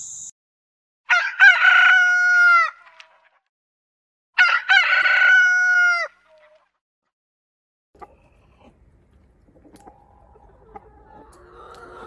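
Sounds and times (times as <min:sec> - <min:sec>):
rooster crowing: 0:01.1 - 0:02.8, 0:04.4 - 0:06.2.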